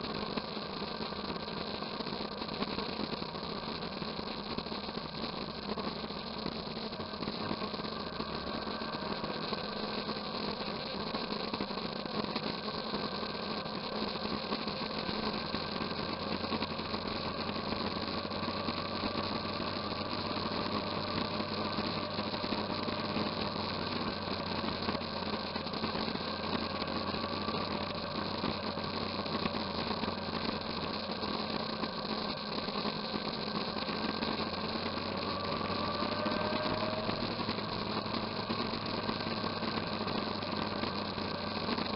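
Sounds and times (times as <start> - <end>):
motorcycle engine running: 7.0 - 10.2, 14.8 - 32.0, 33.9 - 41.9.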